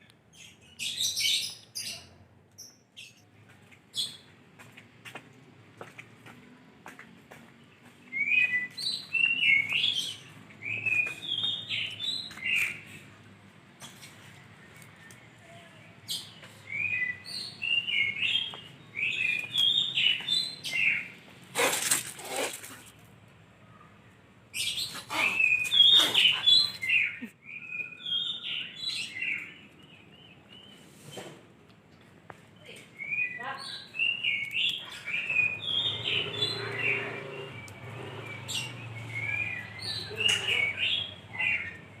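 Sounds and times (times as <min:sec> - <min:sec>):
bird chirping: 0:07.8 - 0:13.2, 0:13.8 - 0:22.5, 0:24.5 - 0:31.3, 0:32.6 - 0:42.0
loud noisy bird squawk: 0:19.0 - 0:22.9, 0:24.6 - 0:29.4, 0:33.6 - 0:41.8.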